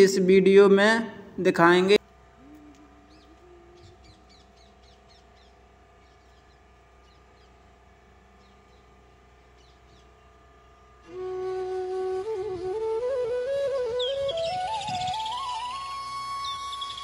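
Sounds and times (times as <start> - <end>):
faint birds chirping: 2.4 - 11.0.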